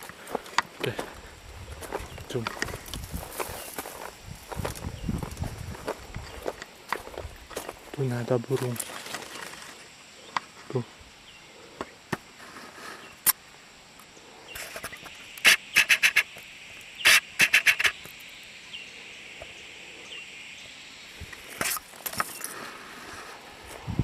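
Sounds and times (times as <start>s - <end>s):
bird chattering: 14.5s - 16.4s, 17.0s - 18.1s.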